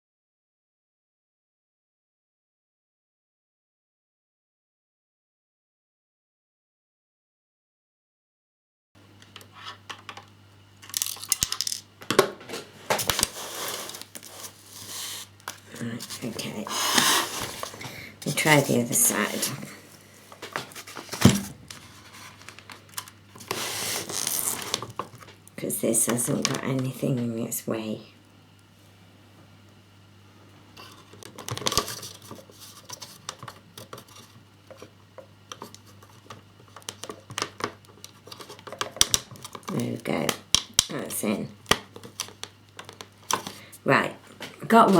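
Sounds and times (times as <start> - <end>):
faint mains hum: 9.0 - 44.9
parts clattering: 9.2 - 19.7
plastic model parts clicking: 10.8 - 11.8.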